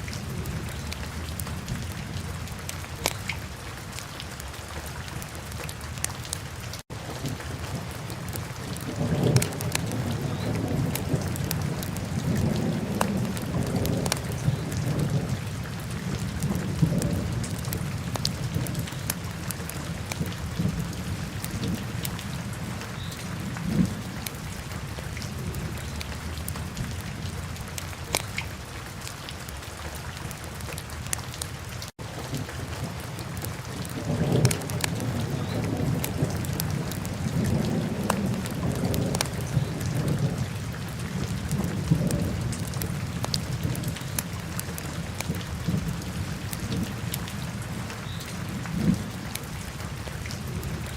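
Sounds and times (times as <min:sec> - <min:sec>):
fire crackling and popping: 0:03.0 - 0:03.3, 0:28.1 - 0:28.4.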